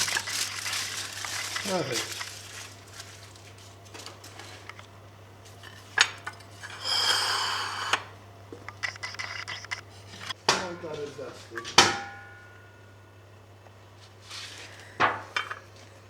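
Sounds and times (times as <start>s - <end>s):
metal scraping with ringing: 6.6s - 8.0s
kitchenware knock: 11.6s - 12.4s.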